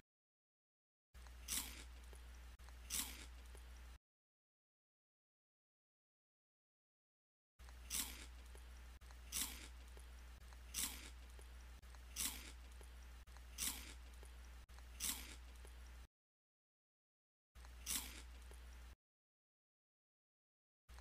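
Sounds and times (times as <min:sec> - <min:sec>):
low steady hum: 0:01.2 - 0:04.0, 0:07.6 - 0:16.1, 0:17.6 - 0:19.0
crunchy bites into candy bar: 0:01.4 - 0:02.0, 0:10.7 - 0:11.2.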